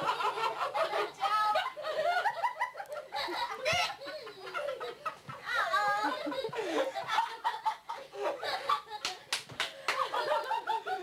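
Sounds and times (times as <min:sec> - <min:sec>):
group of people laughing: 0:00.0 - 0:11.0.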